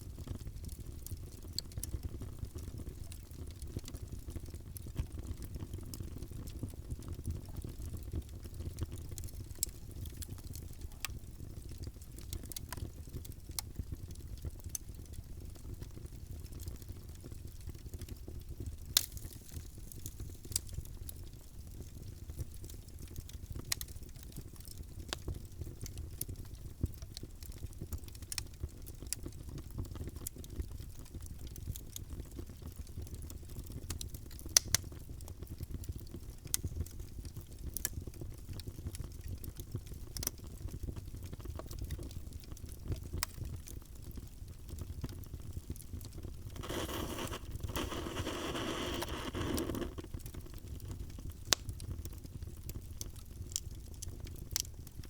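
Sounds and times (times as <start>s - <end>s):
fire popping and crackling: 0.1s - 55.0s
fire roaring: 46.4s - 50.3s.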